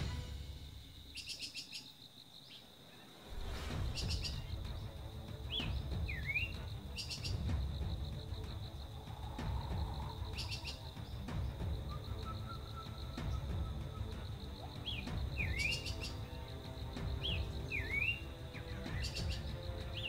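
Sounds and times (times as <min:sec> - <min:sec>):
high insect-like whine: 0:00.0 - 0:20.0
small birds chirping: 0:00.9 - 0:20.0
whistled glides: 0:02.6 - 0:07.4, 0:08.4 - 0:16.4, 0:17.2 - 0:20.0
wind rumble on microphone: 0:03.3 - 0:06.6, 0:07.4 - 0:12.4.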